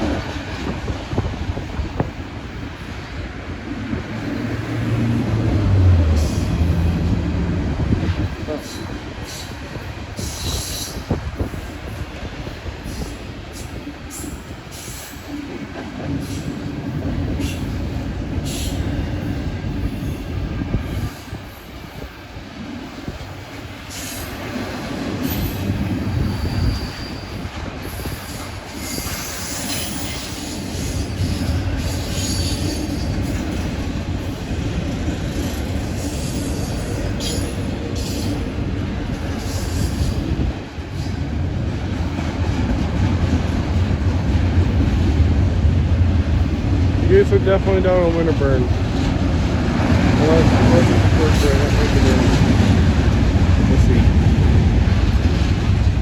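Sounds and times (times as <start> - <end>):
train wheels rumbling on rail: 0.0 - 56.0
wheel squeals: 26.2 - 33.3.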